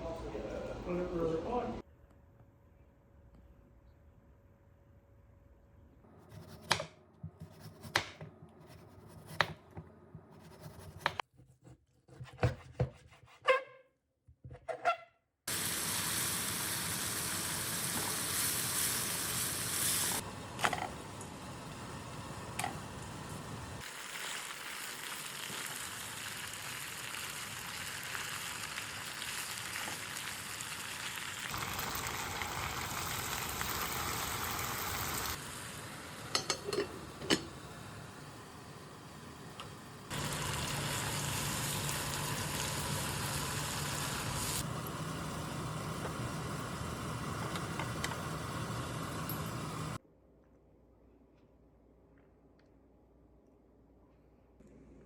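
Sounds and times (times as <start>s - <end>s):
food sizzling in a frying pan: 15.5s - 38.3s, 40.1s - 50.0s.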